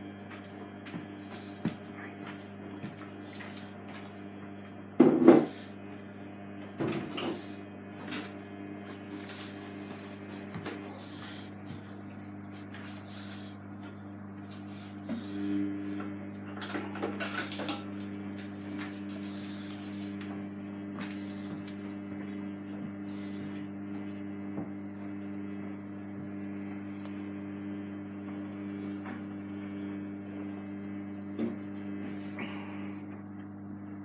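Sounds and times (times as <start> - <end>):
washing machine humming: 0.0 - 34.0.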